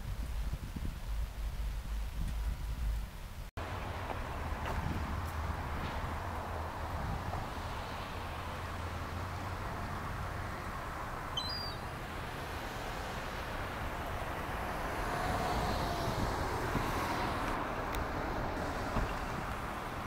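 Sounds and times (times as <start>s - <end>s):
short high chirps: 11.4s - 11.8s.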